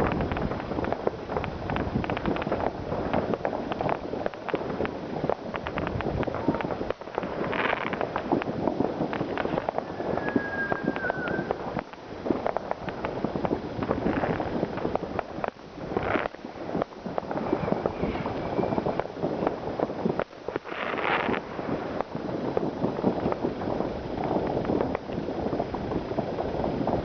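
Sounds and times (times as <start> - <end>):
fireworks and firecrackers banging: 0.0 - 27.0
whistling firework: 5.6 - 13.2, 15.9 - 22.1.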